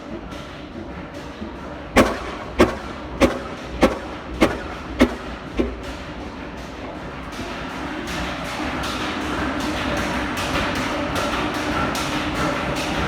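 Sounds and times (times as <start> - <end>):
low hum: 0.0 - 7.7
diesel engine beats: 0.0 - 13.0.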